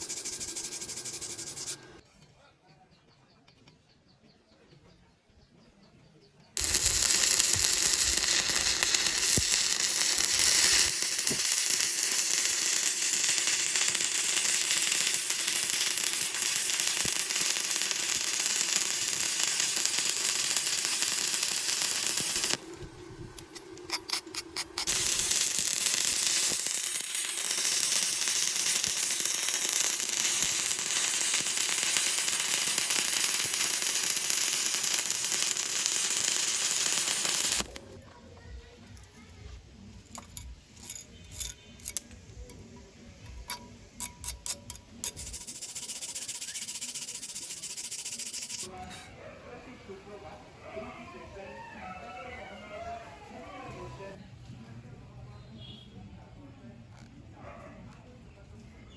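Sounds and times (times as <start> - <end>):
welding arc crackling: 0.0 - 1.9, 6.6 - 37.8, 43.3 - 48.7
arc sputtering: 0.0 - 2.0, 6.6 - 38.0, 43.3 - 48.7.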